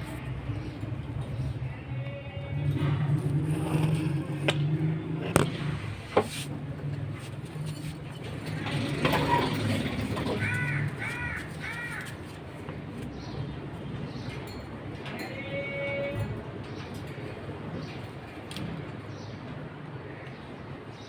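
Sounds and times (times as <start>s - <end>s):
bird harsh calls: 10.1s - 12.4s.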